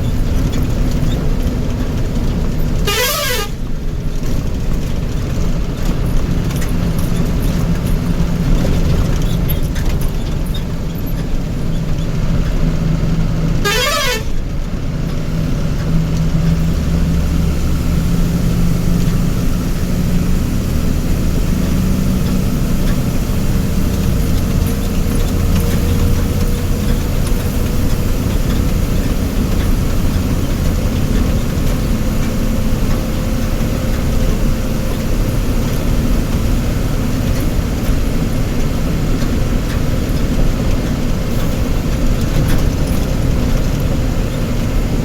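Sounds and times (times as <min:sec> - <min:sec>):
heavy vehicle engine running: 0:00.0 - 0:45.0
warbling horn blast: 0:02.8 - 0:03.6, 0:13.6 - 0:14.4.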